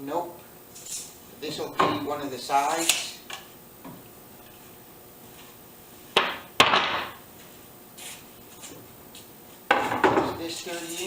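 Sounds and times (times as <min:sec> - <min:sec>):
lumber boards knocking: 0:06.2 - 0:07.2.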